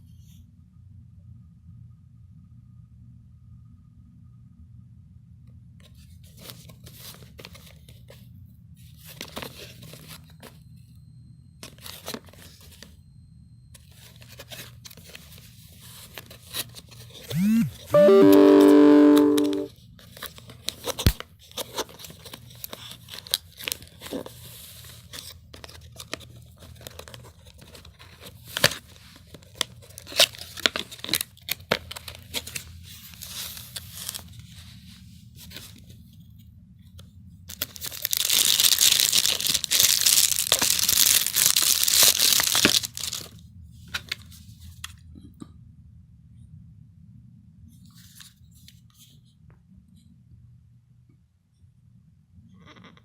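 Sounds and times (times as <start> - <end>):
packaging clicks and rustles: 25.0 - 34.2, 37.5 - 43.4
packaging tearing: 37.5 - 43.3.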